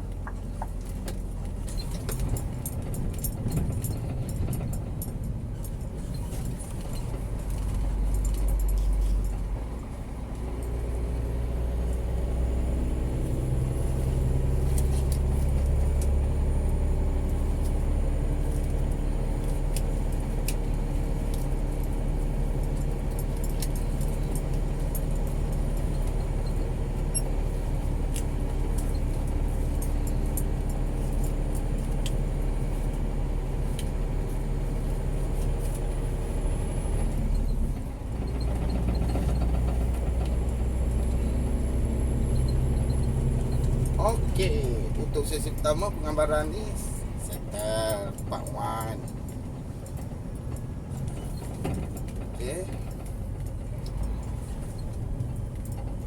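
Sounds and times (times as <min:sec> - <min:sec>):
diesel truck engine rumbling: 0:00.0 - 0:56.0
light clicks and rattles: 0:00.1 - 0:11.0, 0:17.2 - 0:36.0, 0:42.4 - 0:56.0.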